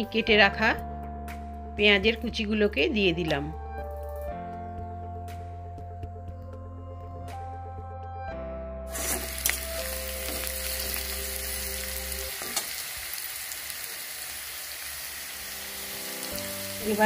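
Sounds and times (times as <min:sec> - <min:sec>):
background music: 0:00.0 - 0:13.2, 0:14.0 - 0:17.0
potatoes sizzling in oil: 0:08.9 - 0:17.0.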